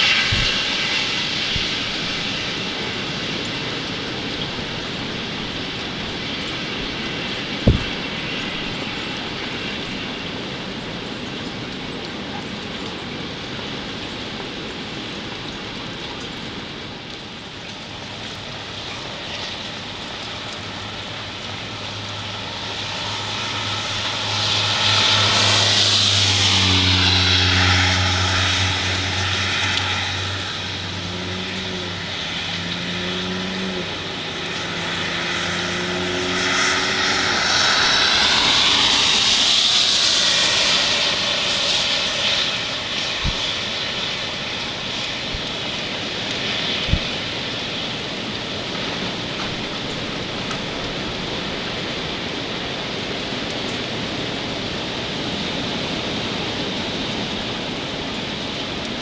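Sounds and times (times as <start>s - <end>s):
low engine hum: 0.0s - 59.0s
tyres hissing on wet road: 0.0s - 59.0s.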